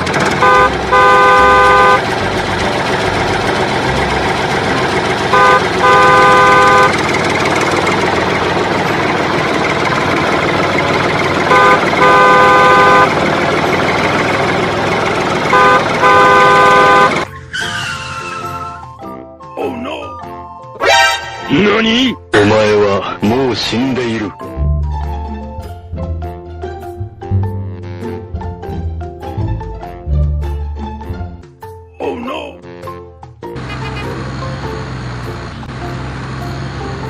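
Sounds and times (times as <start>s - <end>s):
engine or traffic rumble: 0.0s - 18.7s, 33.4s - 37.0s
vehicle horn honking: 0.1s - 2.2s, 5.2s - 7.1s, 11.4s - 13.2s, 15.4s - 17.3s.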